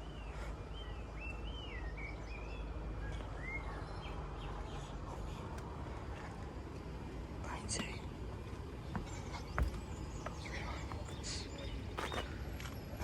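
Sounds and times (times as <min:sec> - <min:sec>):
low outdoor rumble: 0:00.0 - 0:13.0
songbird whistling: 0:00.1 - 0:04.0.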